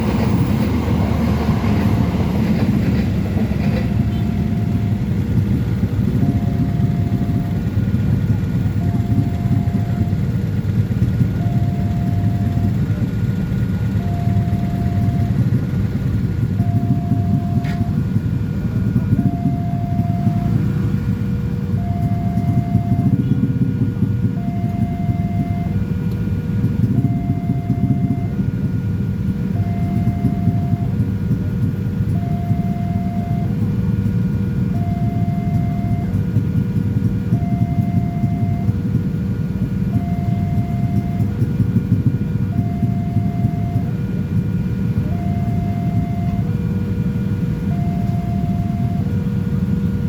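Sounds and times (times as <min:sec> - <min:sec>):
train rumbling past: 0:00.0 - 0:29.3
two-tone crossing alarm: 0:00.0 - 0:50.0.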